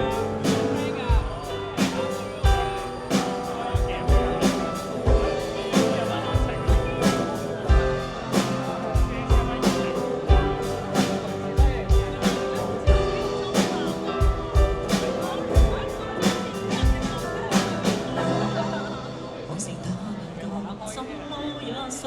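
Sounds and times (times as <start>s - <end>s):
guitar chords: 0.0s - 19.5s
keyboard chords: 0.0s - 20.4s
kick drum beat: 11.6s - 12.2s.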